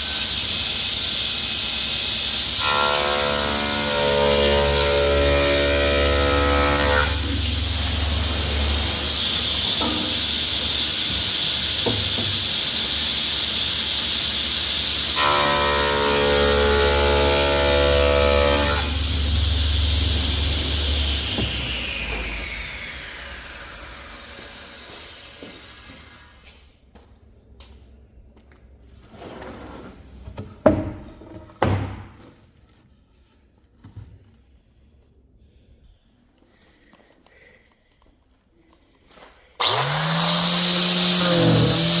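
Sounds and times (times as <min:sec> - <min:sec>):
power tool motor whining: 0:00.0 - 0:26.4, 0:39.6 - 0:42.0
saw cutting through wood: 0:00.0 - 0:26.5, 0:39.6 - 0:42.0
heavy wooden thunks: 0:30.6 - 0:32.2.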